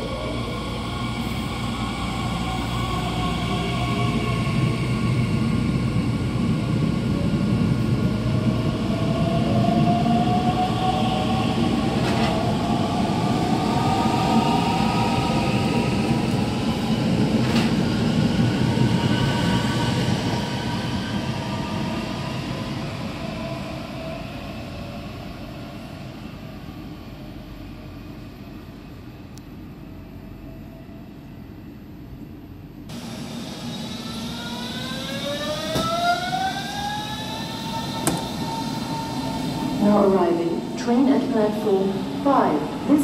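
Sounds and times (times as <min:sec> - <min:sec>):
train drive whine: 0:26.6 - 0:43.0.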